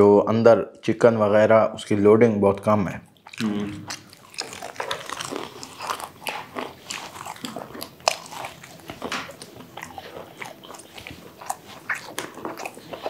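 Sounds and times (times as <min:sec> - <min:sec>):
chewing and biting food: 0:03.2 - 0:13.0
mouth clicks and smacks: 0:03.2 - 0:13.0.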